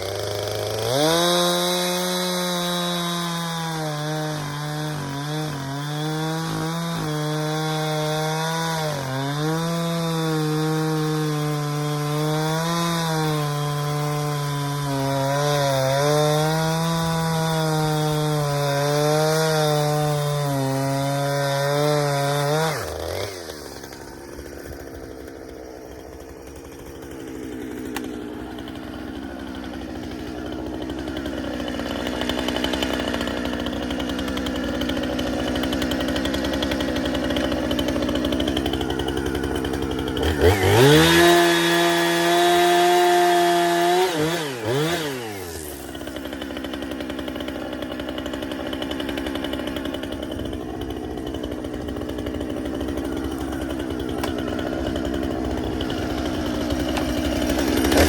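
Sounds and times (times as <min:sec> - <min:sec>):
chainsaw cutting wood: 0:00.0 - 0:58.0
rough engine sound: 0:44.6 - 0:58.0.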